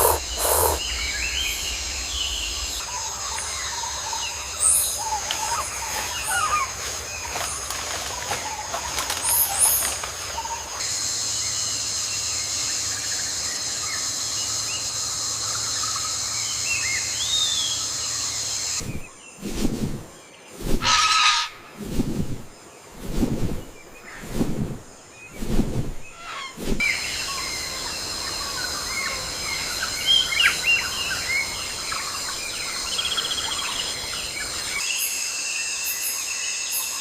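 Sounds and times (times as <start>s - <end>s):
harsh animal call: 0.0s - 0.8s
high-pitched insect drone: 0.0s - 0.9s
bird chirps and whistled calls: 0.0s - 1.3s.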